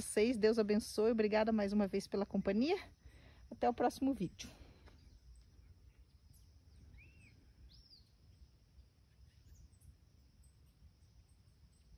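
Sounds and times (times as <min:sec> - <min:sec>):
faint bird chirps: 0:04.6 - 0:11.9.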